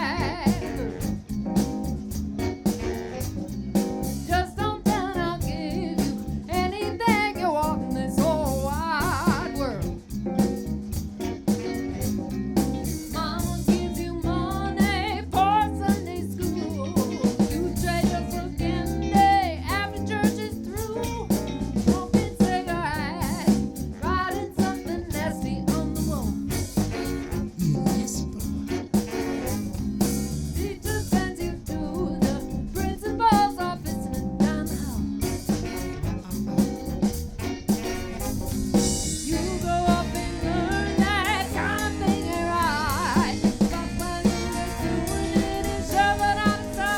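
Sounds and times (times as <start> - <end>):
person singing: 0.0 - 1.1, 4.3 - 9.9, 13.1 - 21.3, 39.1 - 46.9
bass and guitar: 0.0 - 46.9
drum kit beat: 0.0 - 46.9.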